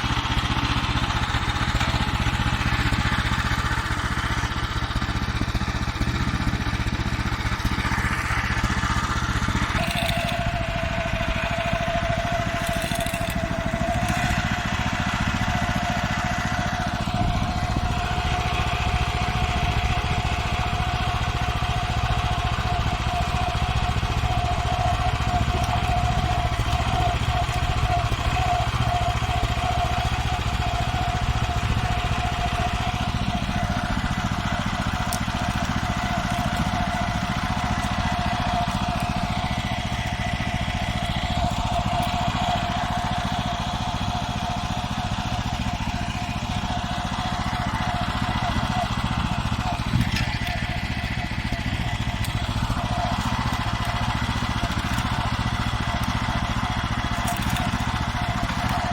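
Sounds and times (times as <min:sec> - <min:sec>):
walk-behind tractor engine running: 0:00.0 - 0:58.9
steady whine: 0:07.6 - 0:44.5.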